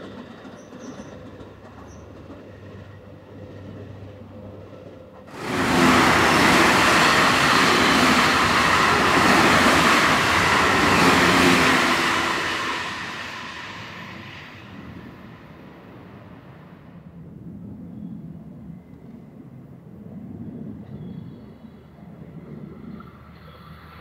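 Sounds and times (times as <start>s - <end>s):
train passing: 0.0s - 17.7s.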